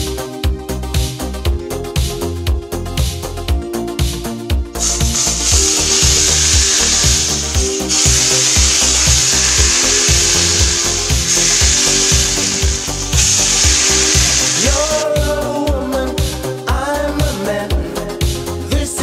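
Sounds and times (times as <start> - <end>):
background music with steady beat: 0.0 - 19.0
hot oil sizzling: 4.8 - 15.0.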